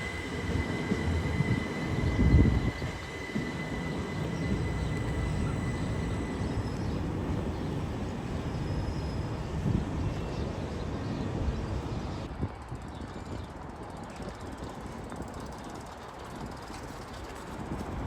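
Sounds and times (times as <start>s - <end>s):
electric train rumbling: 0.0s - 12.8s.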